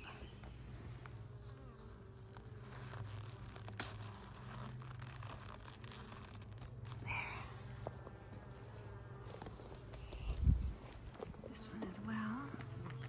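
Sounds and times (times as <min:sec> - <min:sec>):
hands rustling and scraping: 0:02.6 - 0:07.0
steady low hum: 0:06.1 - 0:13.0.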